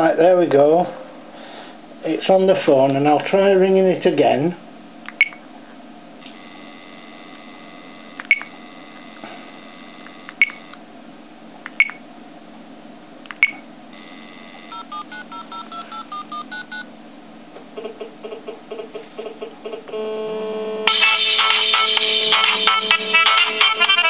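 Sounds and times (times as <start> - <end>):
steady electronic tone: 6.2 - 10.8, 13.9 - 15.4, 19.9 - 23.8
sharp clicks: 8.2 - 8.5, 10.3 - 10.8
touch-tone keypad beeps: 8.2 - 8.5, 10.3 - 10.6, 14.7 - 16.8.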